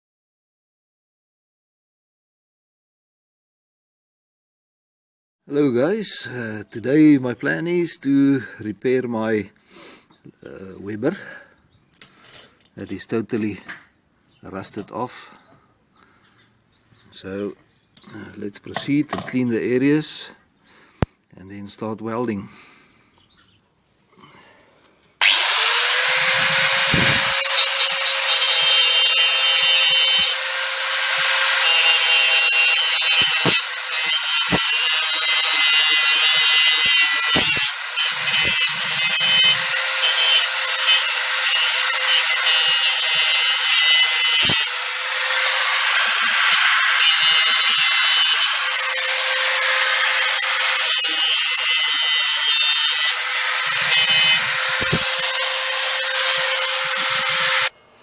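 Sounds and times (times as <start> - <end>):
electric grinder grinding metal: 25.2 - 57.7.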